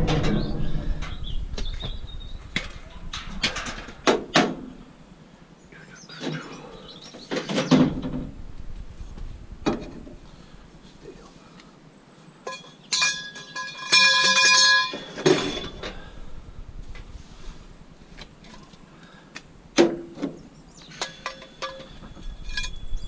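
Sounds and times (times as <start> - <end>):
metal clanking on metal: 0.0 - 1.4, 2.6 - 4.7, 12.5 - 16.1, 20.9 - 23.0
metal piece ringing: 12.5 - 15.8, 21.0 - 23.0.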